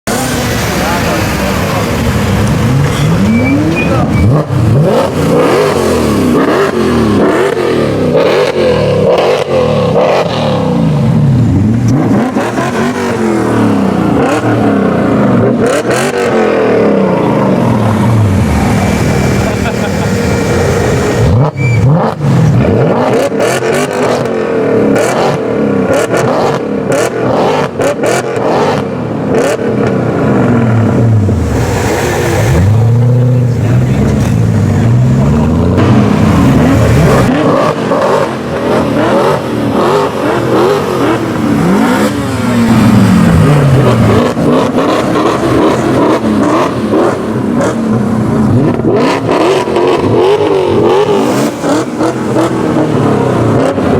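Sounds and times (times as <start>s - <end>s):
car engines revving: 0.0s - 53.9s
exhaust cracks: 29.5s - 53.9s.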